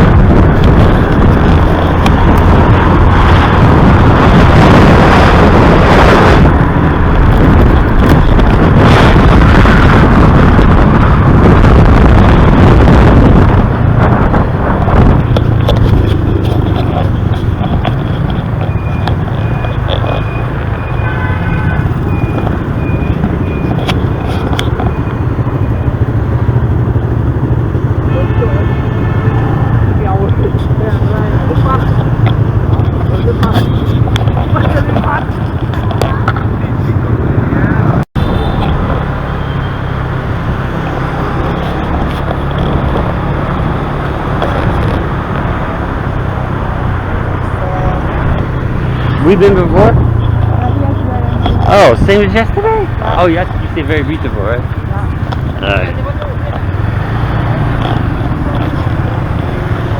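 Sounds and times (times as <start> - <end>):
motorbike engine: 0.0 - 59.9
road and wind noise: 0.0 - 59.9.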